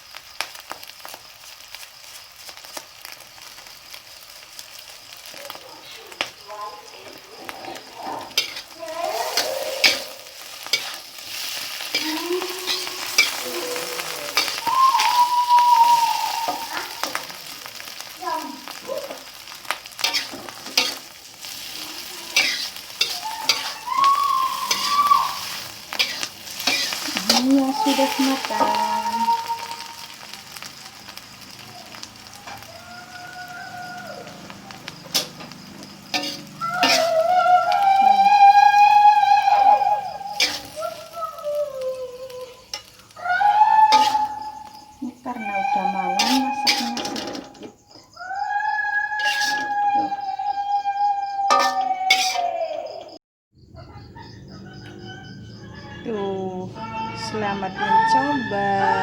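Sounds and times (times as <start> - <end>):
low crackle: 0.0 - 50.3
noodles sizzling in a pan: 0.0 - 50.8, 51.4 - 53.1
crickets chirping: 0.0 - 59.0
utensil scraping against pan: 7.6 - 15.2, 20.0 - 29.4, 35.0 - 37.3, 39.6 - 40.8, 43.9 - 47.7, 49.2 - 50.2, 51.5 - 52.6.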